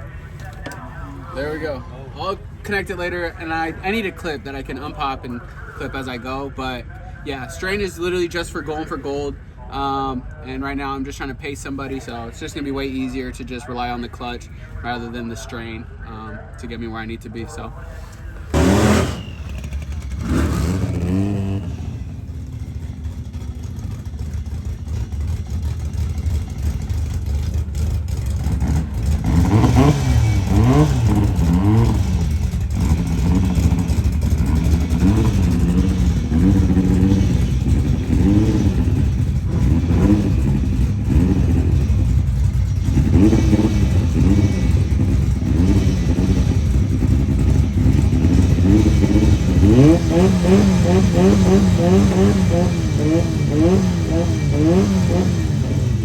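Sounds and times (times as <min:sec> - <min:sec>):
car engine revving: 0:18.4 - 0:56.0
loud engine bursts: 0:18.5 - 0:56.0.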